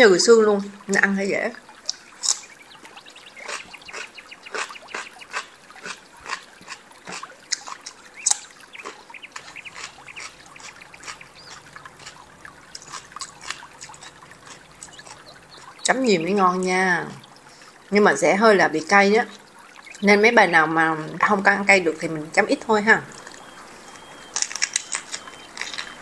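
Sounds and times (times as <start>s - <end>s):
crunching cucumber: 3.4s - 15.7s, 24.2s - 26.0s.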